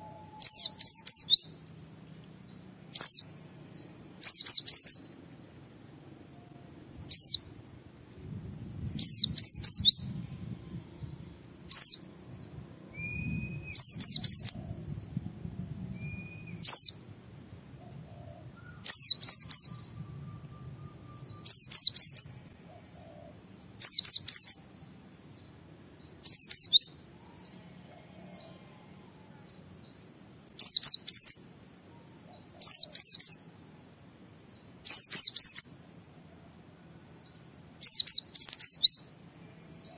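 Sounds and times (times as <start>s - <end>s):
bird chirping rapidly: 0.0s - 1.9s, 2.5s - 5.2s, 6.9s - 7.6s, 8.5s - 17.2s, 18.6s - 23.0s, 23.7s - 25.3s, 26.0s - 27.0s, 29.8s - 31.6s, 32.3s - 33.6s, 34.8s - 35.8s, 37.8s - 39.1s.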